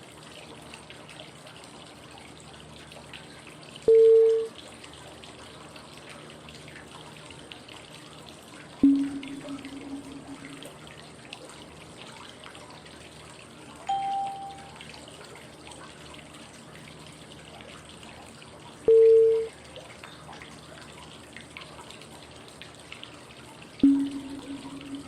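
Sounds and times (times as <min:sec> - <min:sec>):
running water: 0:00.0 - 0:25.0
short clear cue tones: 0:08.8 - 0:10.7, 0:13.9 - 0:14.8, 0:18.9 - 0:19.5, 0:23.8 - 0:25.0.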